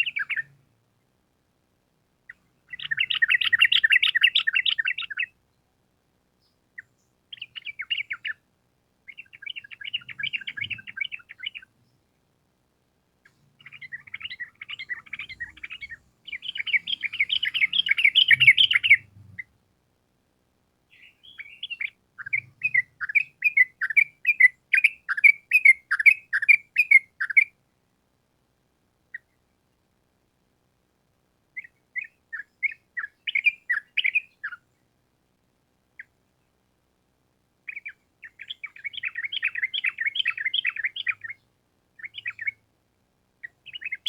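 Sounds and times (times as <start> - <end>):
bulbul singing chattering notes: 13.6 - 19.2.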